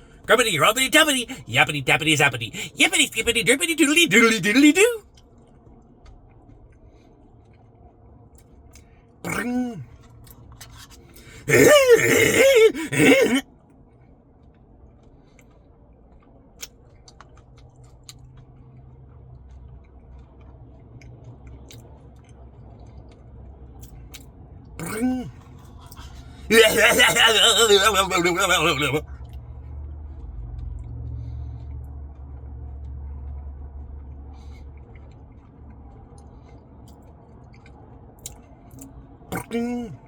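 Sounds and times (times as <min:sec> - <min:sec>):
man wordless vocal sounds: 0:00.3 - 0:05.0, 0:09.2 - 0:09.9, 0:11.2 - 0:13.4, 0:24.8 - 0:25.4, 0:26.0 - 0:29.1, 0:39.3 - 0:40.0
man chewing: 0:08.4 - 0:13.4, 0:23.8 - 0:29.4.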